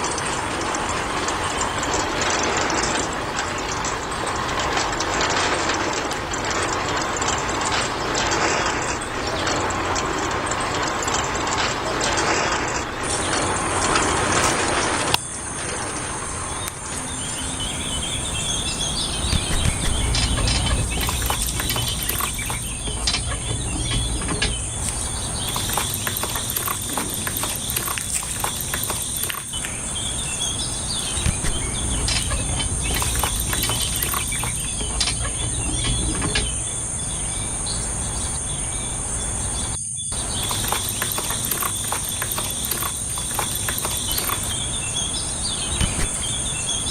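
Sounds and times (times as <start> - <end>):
insects trilling: 0.0 - 46.9
small clicks and knocks: 19.2 - 29.9, 30.5 - 36.6, 40.1 - 44.8.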